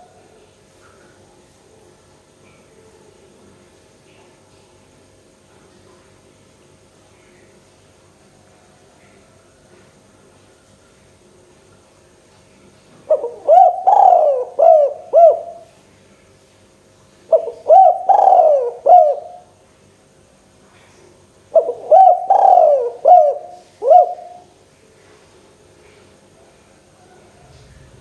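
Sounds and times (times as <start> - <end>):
dove cooing: 13.1 - 15.7, 17.3 - 19.5, 21.5 - 24.6.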